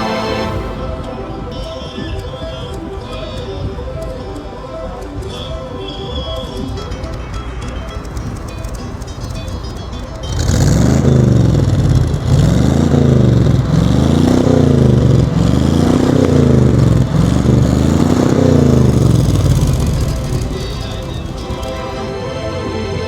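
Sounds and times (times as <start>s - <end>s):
engine revving: 7.9s - 23.0s.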